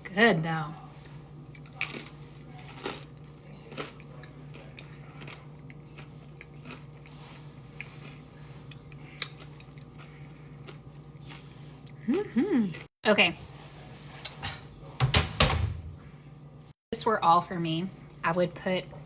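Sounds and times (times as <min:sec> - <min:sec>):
person chewing crunchy crackers: 0:01.4 - 0:12.1.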